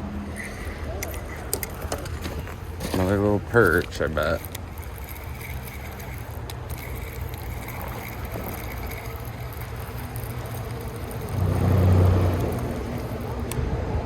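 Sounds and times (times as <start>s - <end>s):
motor rumbling: 0.0s - 13.7s.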